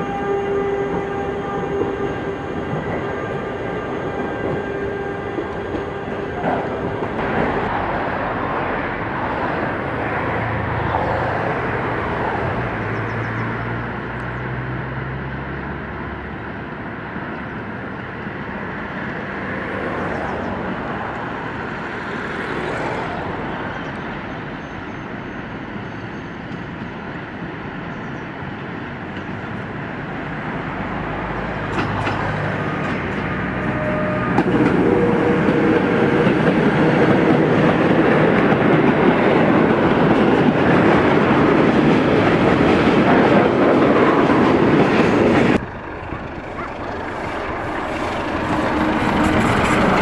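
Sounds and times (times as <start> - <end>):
train rumble and rail noise: 0.0 - 50.0
low engine hum: 45.4 - 50.0.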